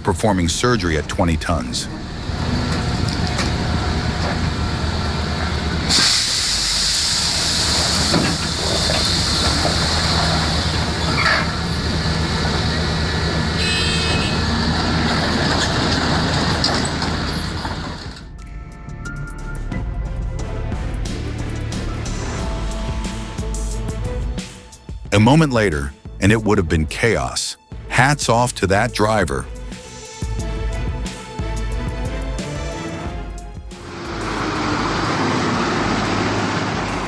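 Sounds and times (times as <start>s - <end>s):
large engine running: 0.0s - 18.2s, 33.7s - 37.0s
loud hiss: 5.9s - 12.2s, 33.8s - 37.0s.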